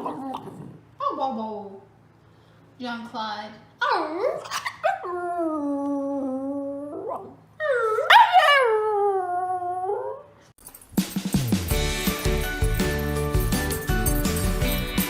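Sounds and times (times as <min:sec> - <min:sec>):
music: 0:10.7 - 0:15.0.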